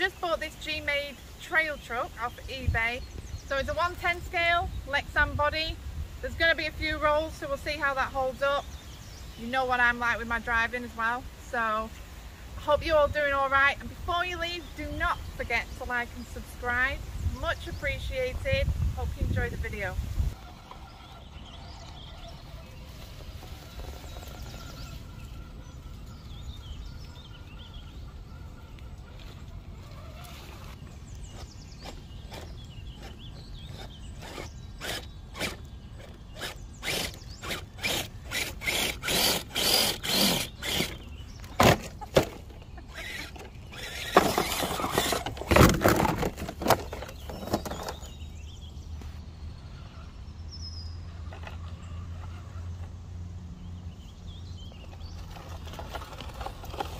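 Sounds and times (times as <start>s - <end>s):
rc crawler clacking on rock: 20.4s - 26.6s, 27.5s - 48.3s, 54.8s - 56.9s.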